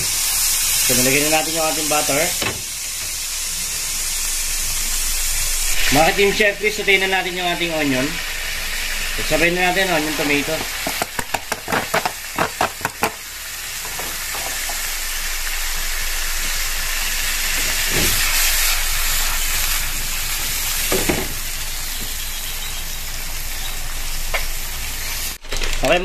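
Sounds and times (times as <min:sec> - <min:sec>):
onion sizzling in a frying pan: 0:00.0 - 0:25.7.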